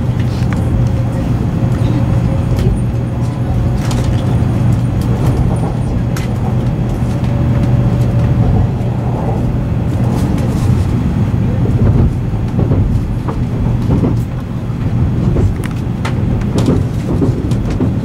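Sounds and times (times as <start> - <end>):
train running low rumble: 0.0 - 18.0.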